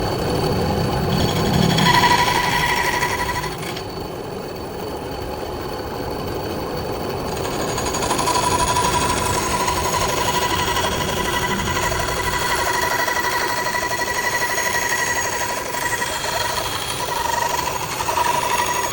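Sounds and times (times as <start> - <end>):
bandsaw cutting wood: 1.1 - 3.9, 7.4 - 18.9.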